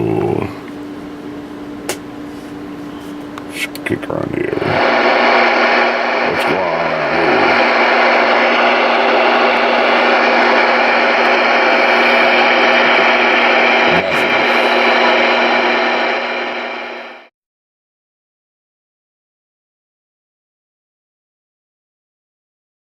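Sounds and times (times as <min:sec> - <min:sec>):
low hum tone: 0:00.0 - 0:17.3
radio static hiss: 0:03.0 - 0:17.3.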